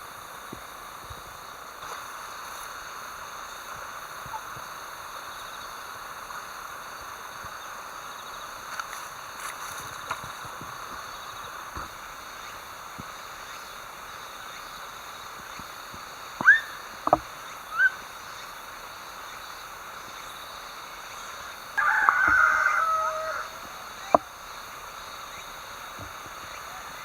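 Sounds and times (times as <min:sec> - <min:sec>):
insects humming: 0:00.0 - 0:27.0
bird calls gliding in pitch: 0:16.4 - 0:16.9, 0:17.7 - 0:18.1.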